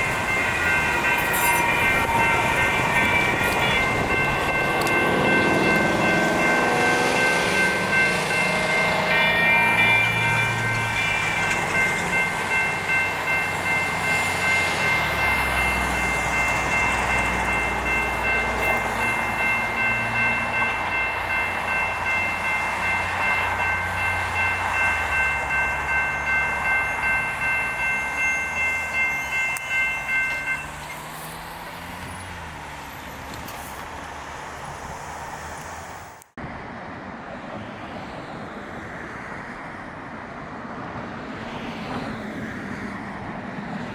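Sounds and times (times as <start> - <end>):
crossing bell ringing: 0.0 - 33.4
traffic noise: 0.0 - 43.9
train rumbling: 0.0 - 43.9.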